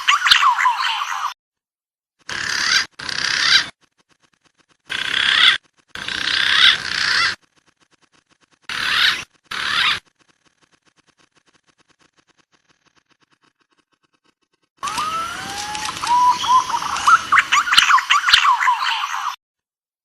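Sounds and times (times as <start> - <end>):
pigeon calls: 2.3 - 3.8, 4.4 - 7.4, 8.7 - 10.1, 14.8 - 19.4.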